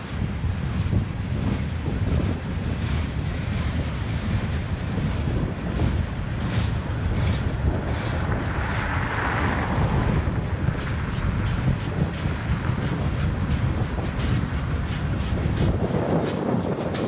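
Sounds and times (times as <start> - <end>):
freight train wheels rumbling on track: 0.0 - 17.0
wind buffeting microphone: 0.0 - 17.0.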